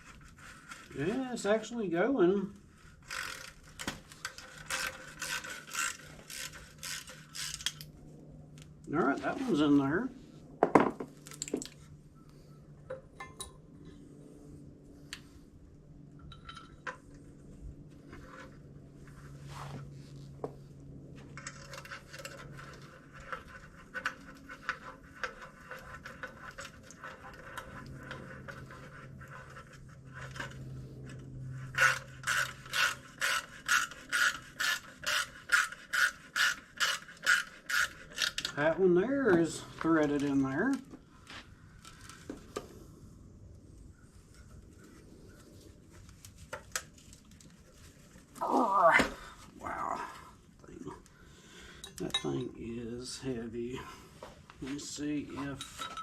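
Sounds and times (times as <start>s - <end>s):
ratchet wrench clicking: 4.3s - 7.8s, 31.8s - 38.6s.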